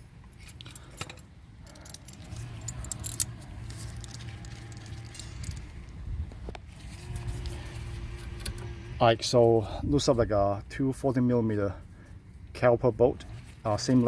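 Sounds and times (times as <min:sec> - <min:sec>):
hand tools clinking and rattling: 0:00.0 - 0:05.7
low steady hum: 0:00.0 - 0:14.0.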